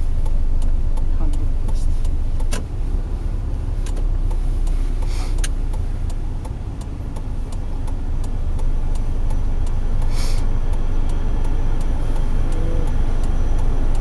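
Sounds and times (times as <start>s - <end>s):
car engine rumble: 0.0s - 14.0s
faint ticking: 0.0s - 14.0s
road noise: 0.0s - 14.0s
brief hiss: 4.7s - 5.5s, 10.1s - 10.5s.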